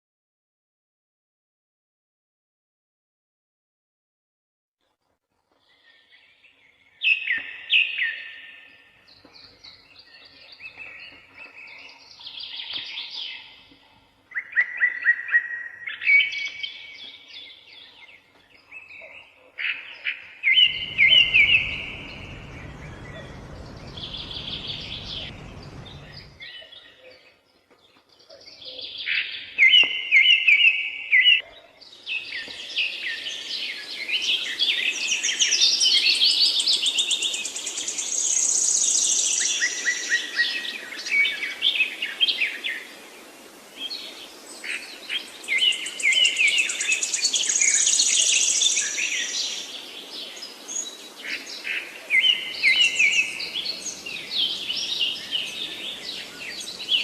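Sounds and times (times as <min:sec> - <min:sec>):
songbirds chirping and trilling: 0:05.5 - 0:57.0
faint steady hiss: 0:20.4 - 0:26.5, 0:31.9 - 0:57.0.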